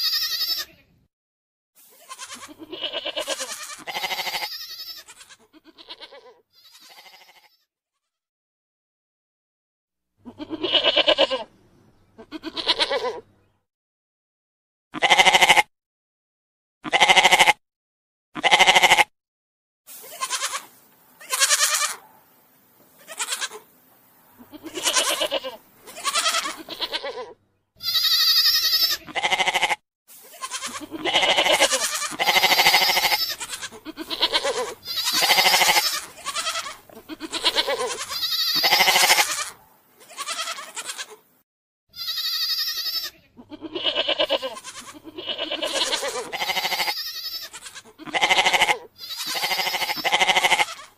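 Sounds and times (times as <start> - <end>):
goats bleating: 0.0 - 0.8, 1.9 - 7.6, 10.2 - 11.5, 12.2 - 13.3, 15.0 - 15.7, 16.8 - 17.6, 18.4 - 19.1, 20.0 - 22.1, 23.0 - 23.7, 24.3 - 41.2, 41.9 - 50.9.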